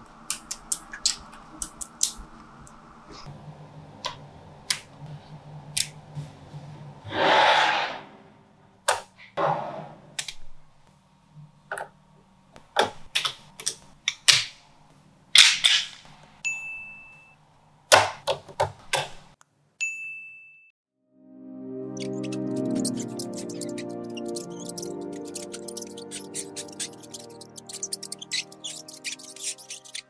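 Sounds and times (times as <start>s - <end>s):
magnetic balls clicking together: 0.0s - 2.3s, 12.6s - 14.6s.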